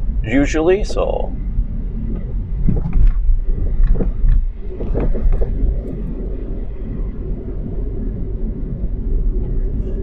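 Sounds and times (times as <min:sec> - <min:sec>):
engine and tyres rumbling: 0:00.0 - 0:10.0
car knocks and thumps: 0:02.0 - 0:06.2.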